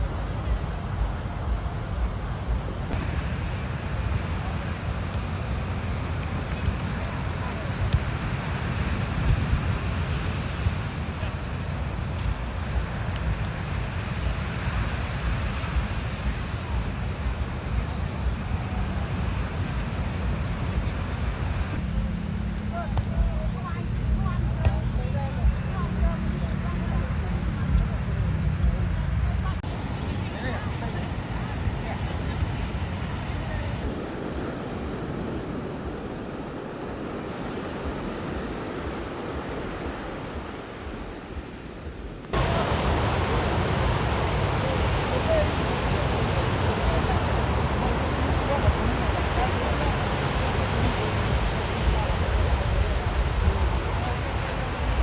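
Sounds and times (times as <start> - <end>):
wind buffeting microphone: 0.0 - 22.1, 23.1 - 55.0
ocean surf on a beach: 0.0 - 55.0
loud rushing noise: 29.6 - 55.0.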